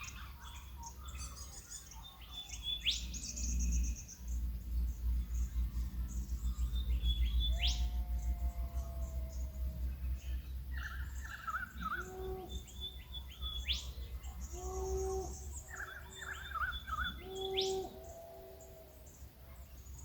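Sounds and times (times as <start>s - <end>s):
birds singing: 0.0s - 20.0s
low steady rumble: 2.6s - 17.4s.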